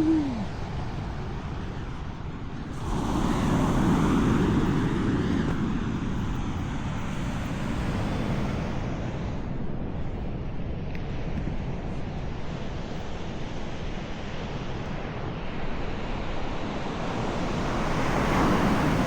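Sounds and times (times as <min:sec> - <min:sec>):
sea surf: 0:00.0 - 0:09.7, 0:15.7 - 0:19.0
wind buffeting the microphone: 0:00.0 - 0:19.0.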